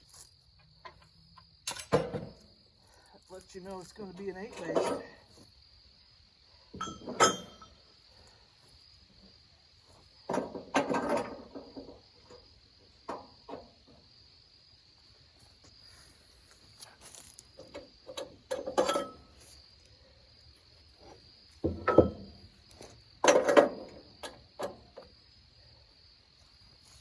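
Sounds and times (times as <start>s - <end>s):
crickets chirring: 0.0s - 27.0s
knocks and clattering: 10.3s - 12.4s, 17.6s - 19.3s, 21.6s - 22.4s, 23.2s - 24.9s.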